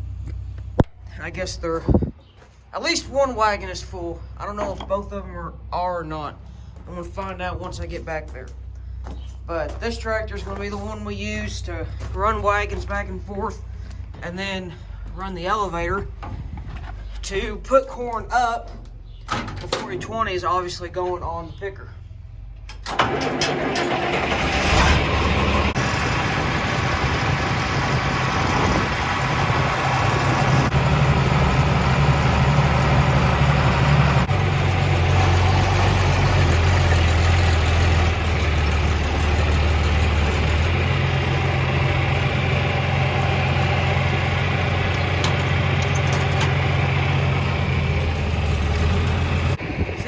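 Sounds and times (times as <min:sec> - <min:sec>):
tractor engine running: 0:22.4 - 0:50.0.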